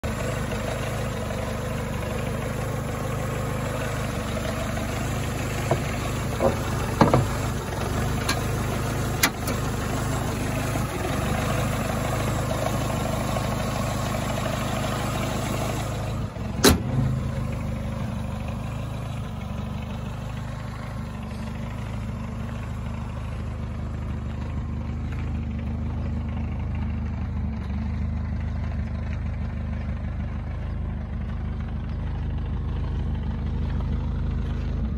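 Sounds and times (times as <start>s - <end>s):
car engine idling: 0.0s - 34.9s
car hood slamming shut: 5.6s - 7.5s, 16.6s - 17.0s.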